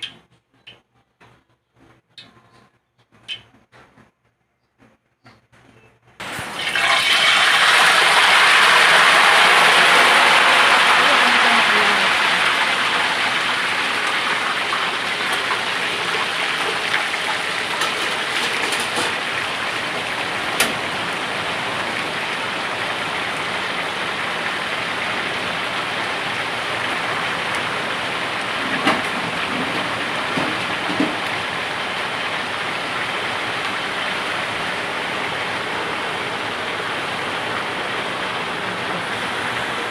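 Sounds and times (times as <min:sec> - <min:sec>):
chicken sizzling in hot oil: 0:06.2 - 0:39.3.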